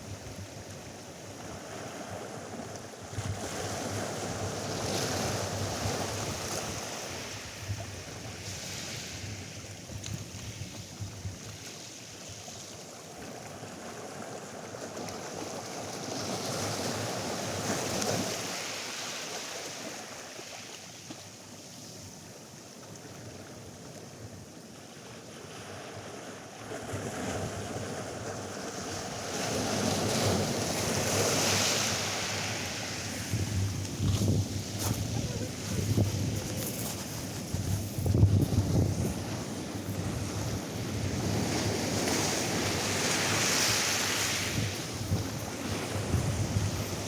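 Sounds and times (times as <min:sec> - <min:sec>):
wind: 0:00.0 - 0:47.0
surf washing onto beach: 0:26.4 - 0:47.0.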